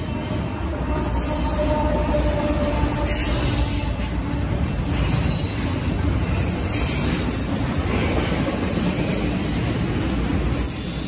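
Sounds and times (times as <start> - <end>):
freight train wheels on rails: 0.0 - 11.0.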